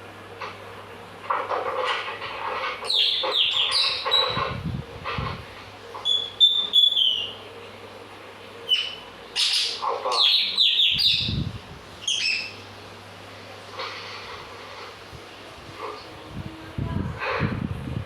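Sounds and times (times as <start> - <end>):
bird whistling and chirping: 2.9 - 4.4, 6.0 - 7.4, 8.7 - 11.4, 12.0 - 12.6.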